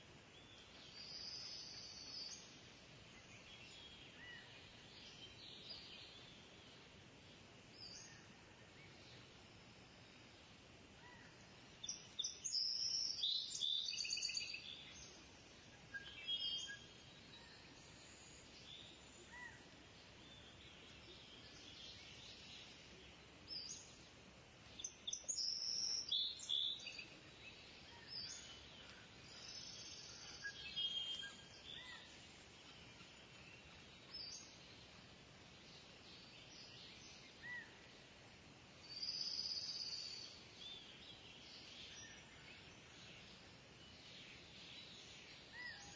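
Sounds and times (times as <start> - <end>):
faint background hiss: 0.0 - 45.9.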